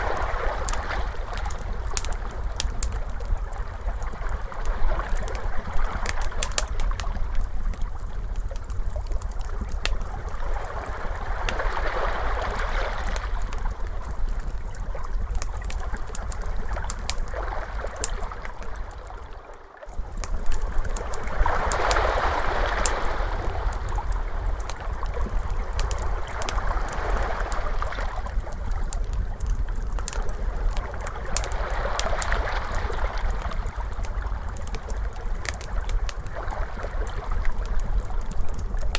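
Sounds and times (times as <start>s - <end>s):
wood fire crackling: 0.0s - 38.9s
ocean waves washing in: 20.5s - 24.5s.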